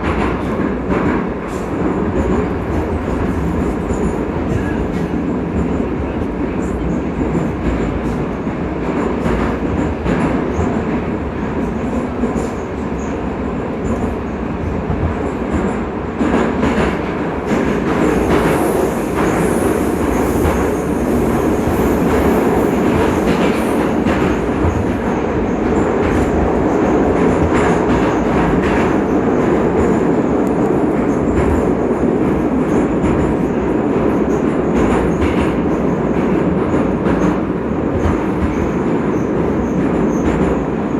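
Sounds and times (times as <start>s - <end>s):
train rumbling in tunnel: 0.0s - 40.9s.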